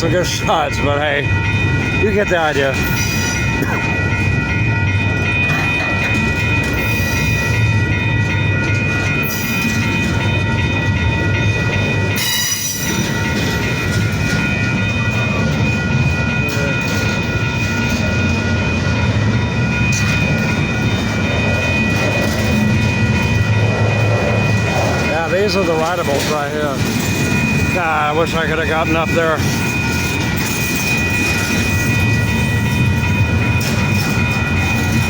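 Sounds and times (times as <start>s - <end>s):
freight train wheels rumbling: 0.0s - 35.0s.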